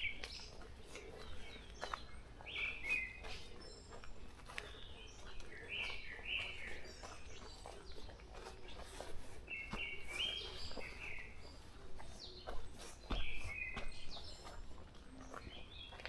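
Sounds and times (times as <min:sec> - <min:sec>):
forest birds chirping: 0:00.0 - 0:16.0.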